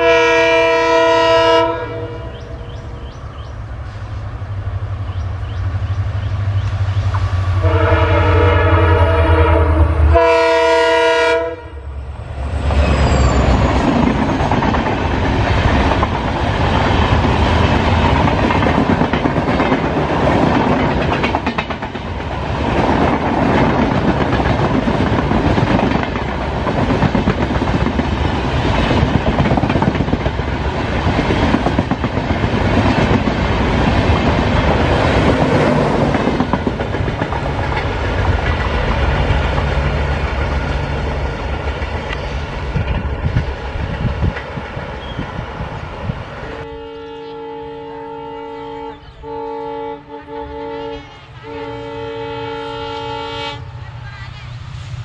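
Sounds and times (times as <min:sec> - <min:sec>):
train passing rumble: 0:00.0 - 0:55.0
train wheels clattering: 0:12.6 - 0:45.4.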